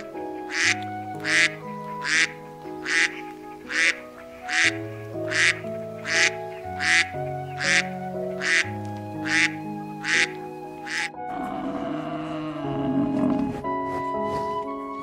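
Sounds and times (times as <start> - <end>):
duck quacking: 0.0 - 11.2
background music with held chords: 0.0 - 15.0.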